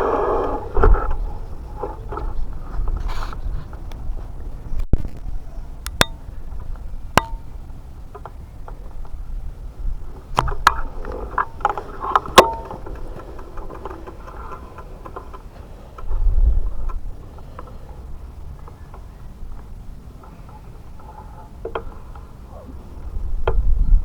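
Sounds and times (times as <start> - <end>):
wind rumble on microphone: 0.0 - 24.0
bicycle clicks and metallic knocks: 5.8 - 9.4, 10.1 - 22.4.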